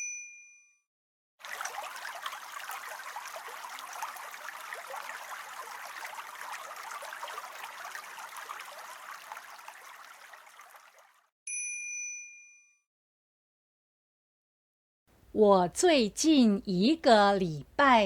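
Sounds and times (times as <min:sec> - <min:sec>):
trickling water: 0:01.4 - 0:11.3.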